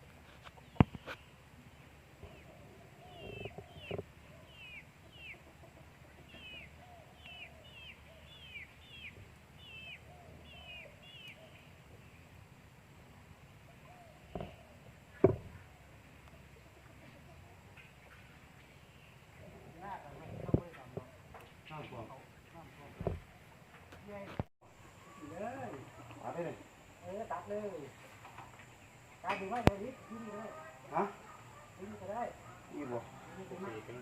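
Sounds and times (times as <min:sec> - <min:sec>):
fainter lower bird calls: 0:00.2 - 0:34.0
sharp knocks: 0:15.2 - 0:15.6.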